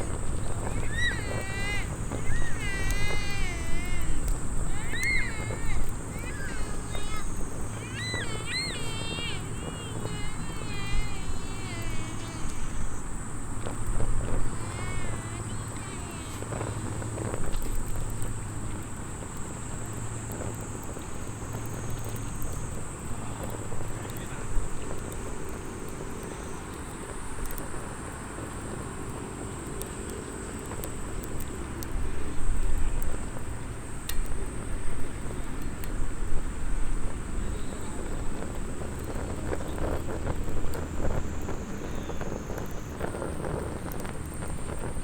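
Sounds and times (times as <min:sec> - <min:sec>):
wind against microphone: 0:00.0 - 0:26.3
wood fire crackling: 0:00.0 - 0:45.0.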